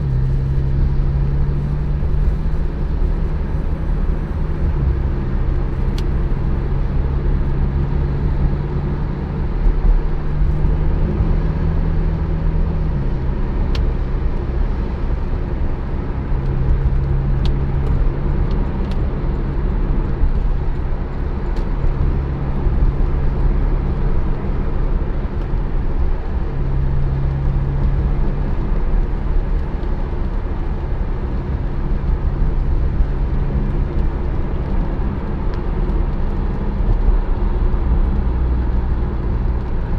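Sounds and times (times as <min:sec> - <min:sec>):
car engine at low revs: 0:00.0 - 0:39.9
road noise: 0:00.0 - 0:39.9.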